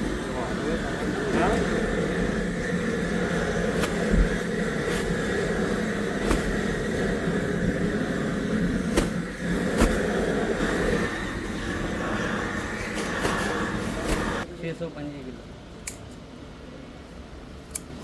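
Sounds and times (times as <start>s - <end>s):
machinery humming: 0.0s - 14.7s.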